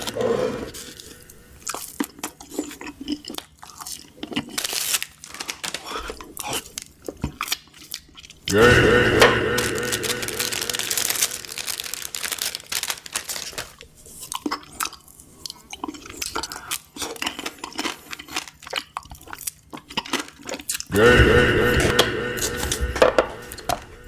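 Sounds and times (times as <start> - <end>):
crunching fried chicken: 0.8 - 21.2
loud steady tone: 8.5 - 11.7, 20.9 - 24.0.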